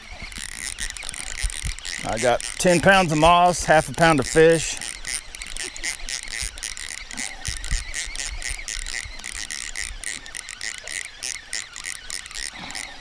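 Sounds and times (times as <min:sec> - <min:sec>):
fishing reel clicking: 0:00.0 - 0:13.0.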